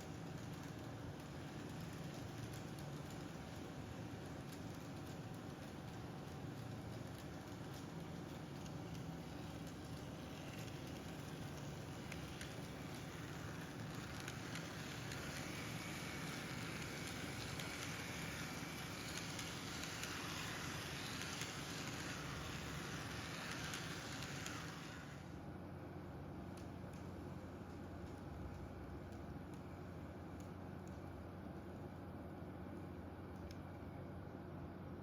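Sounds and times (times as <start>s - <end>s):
model train whirring on track: 0.0s - 25.5s
faint clicks: 33.3s - 33.7s.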